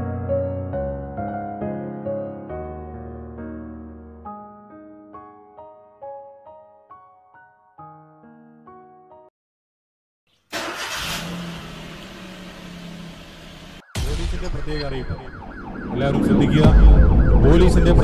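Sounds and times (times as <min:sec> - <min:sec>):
car engine starting and running: 0:10.5 - 0:13.9
siren wailing: 0:13.7 - 0:18.0.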